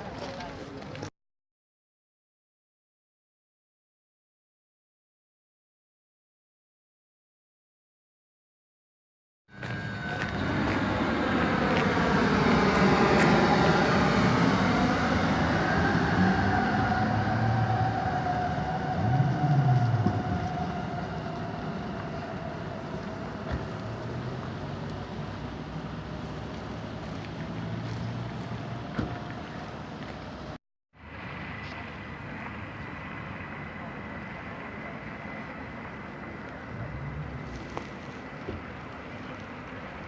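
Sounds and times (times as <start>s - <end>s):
train passing with whining tones: 9.5s - 40.0s
low rumble: 36.5s - 38.9s.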